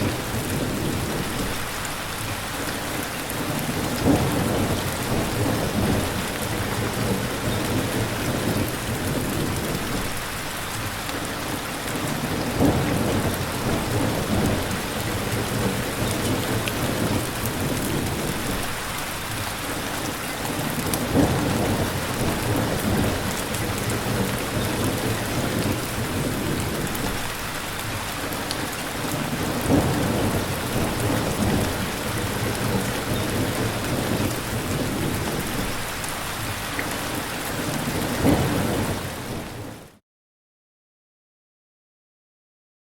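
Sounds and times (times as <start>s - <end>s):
steady rain: 0.0s - 40.0s
thunder rumbling: 3.7s - 10.2s, 12.0s - 18.9s, 20.4s - 27.4s, 29.1s - 36.0s, 37.9s - 39.8s.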